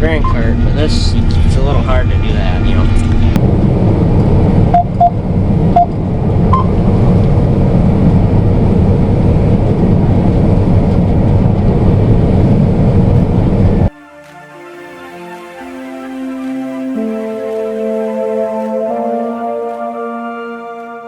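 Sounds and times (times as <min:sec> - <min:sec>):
combine harvester engine running: 0:00.0 - 0:13.9.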